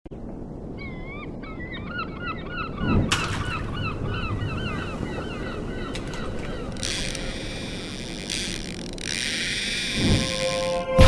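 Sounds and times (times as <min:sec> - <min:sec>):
bird calling rapidly: 0:03.6 - 0:10.8.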